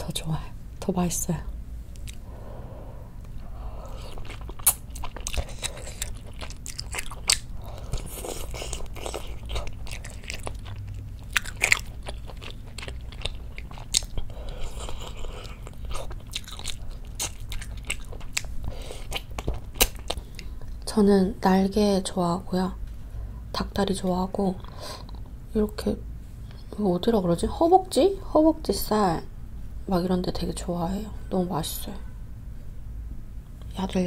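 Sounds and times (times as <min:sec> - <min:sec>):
person chewing food: 0:02.0 - 0:02.3, 0:03.2 - 0:20.8.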